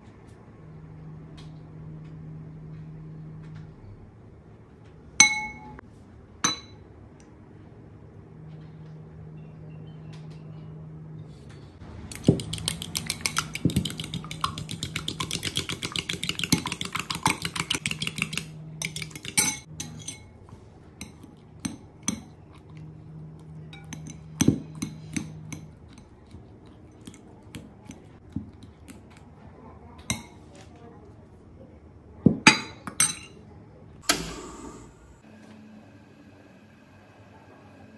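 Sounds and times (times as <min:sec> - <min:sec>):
fork beating eggs in glass bowl: 0:12.0 - 0:20.3, 0:21.0 - 0:29.3
fork tapping on bowl: 0:12.1 - 0:19.9.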